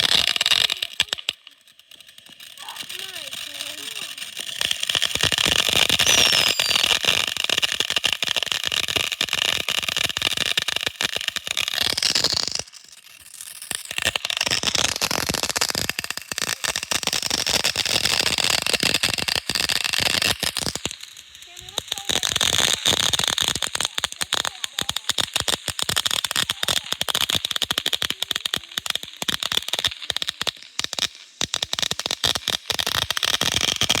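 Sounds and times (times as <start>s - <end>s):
fireworks crackling pops: 0.0s - 34.0s
firework falling whistle: 4.6s - 7.6s.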